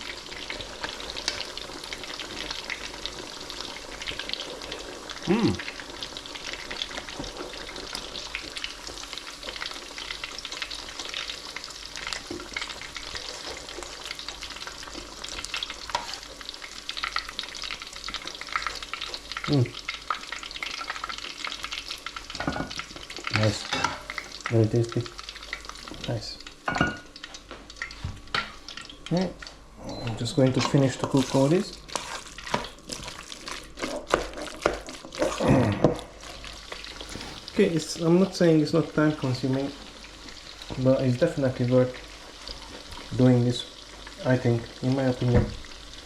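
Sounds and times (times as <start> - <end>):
food frying in hot oil: 0.0 - 29.6, 30.2 - 46.0
hum-like voice sound: 5.2 - 5.6, 29.8 - 30.4, 35.3 - 36.0.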